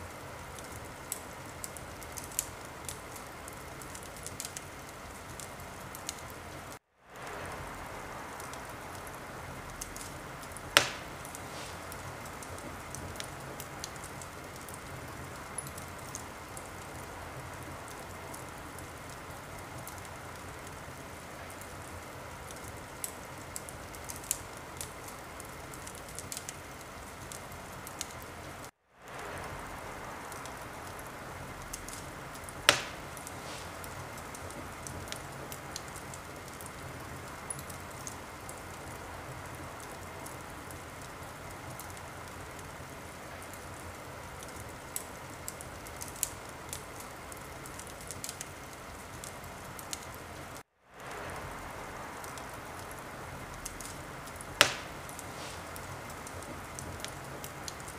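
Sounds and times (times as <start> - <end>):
wood fire crackling and popping: 0.0 - 57.9.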